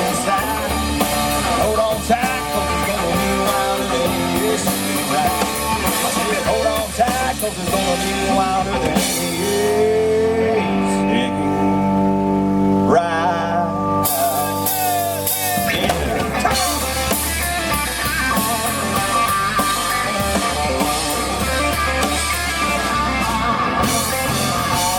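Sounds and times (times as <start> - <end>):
drums and cymbals: 0.0 - 10.4, 14.0 - 24.9
country rock band playing: 0.0 - 24.9
wavering electric guitar lead: 0.0 - 24.9.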